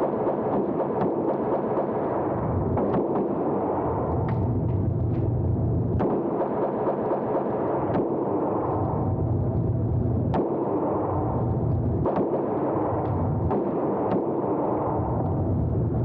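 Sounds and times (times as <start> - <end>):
gunshots: 0.0 - 4.5, 6.0 - 9.1, 10.3 - 11.4, 12.0 - 15.2
low rumble: 3.7 - 6.1, 8.4 - 16.0.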